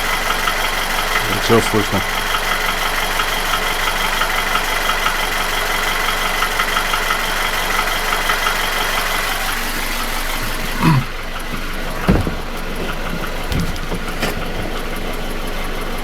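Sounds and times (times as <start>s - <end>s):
car engine idling with knock: 0.0s - 16.0s.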